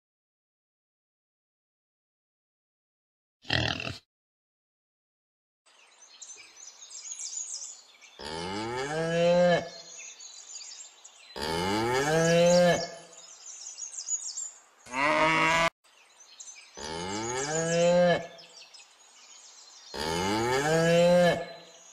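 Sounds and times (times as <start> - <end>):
cattle mooing: 11.4 - 12.9, 14.9 - 15.7, 16.8 - 18.3, 20.0 - 21.5.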